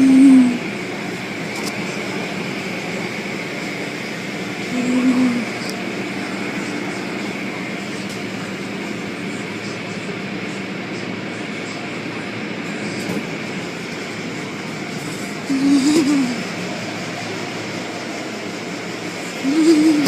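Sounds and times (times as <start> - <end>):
car wash machinery rushing: 0.0 - 20.0.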